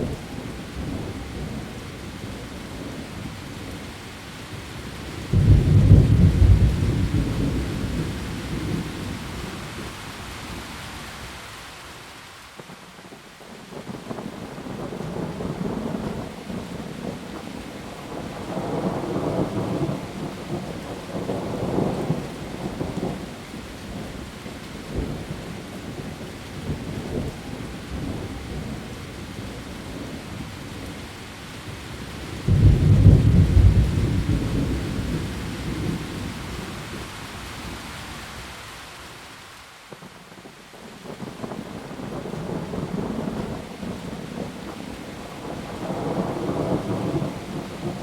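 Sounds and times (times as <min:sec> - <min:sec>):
heavy rain on leaves: 0:00.0 - 0:48.0
rolling thunder: 0:05.2 - 0:09.5, 0:32.4 - 0:37.0, 0:45.3 - 0:48.0
sharp thunderclap: 0:05.3 - 0:08.9, 0:32.5 - 0:36.0.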